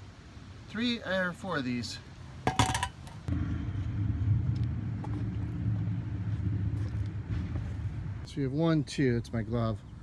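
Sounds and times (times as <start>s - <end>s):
low rumble: 3.3s - 8.3s.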